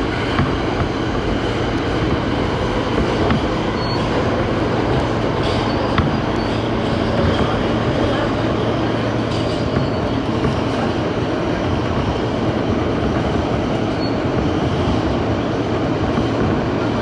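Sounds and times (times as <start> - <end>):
subway train wheels rumbling: 0.0 - 17.0.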